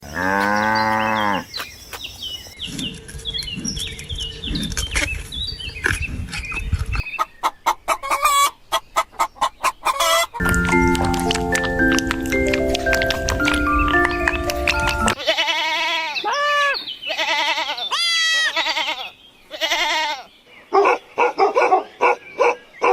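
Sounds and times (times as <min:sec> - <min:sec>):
chickens clucking: 0:05.8 - 0:15.2
high peeps falling in pitch: 0:10.4 - 0:15.2.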